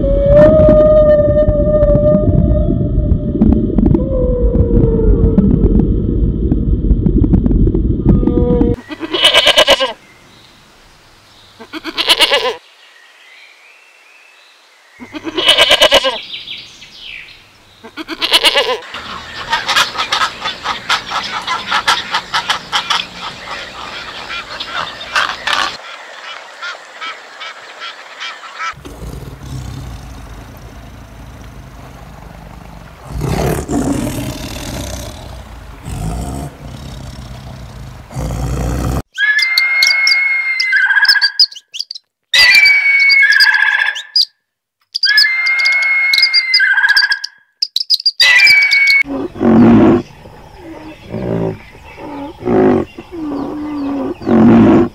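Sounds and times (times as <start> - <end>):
goat bleating: 8.8 - 10.0, 11.6 - 12.6, 15.1 - 16.2, 17.9 - 18.8.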